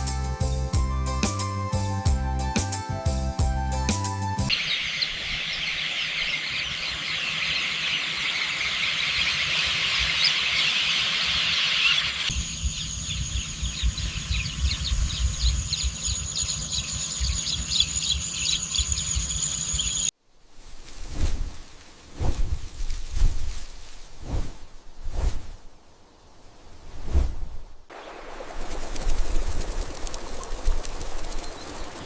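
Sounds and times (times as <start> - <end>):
birds and insects chirping: 4.5 - 20.2, 27.8 - 32.0
wind rumbling on microphone: 12.3 - 19.3, 20.5 - 32.0.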